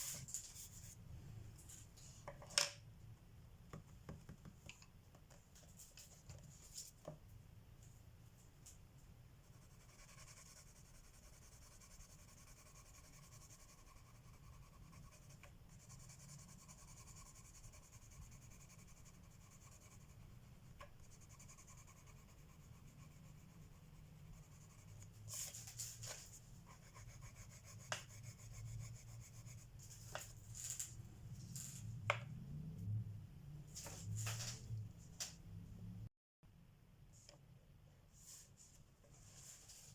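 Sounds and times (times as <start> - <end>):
pencil scratching on paper: 9.4 - 30.3.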